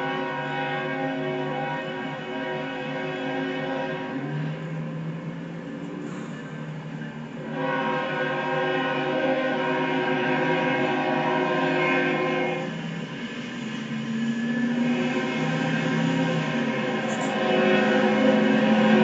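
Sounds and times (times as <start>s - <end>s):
locomotive air horn blast: 0.0s - 4.9s, 7.3s - 12.8s, 14.7s - 19.0s.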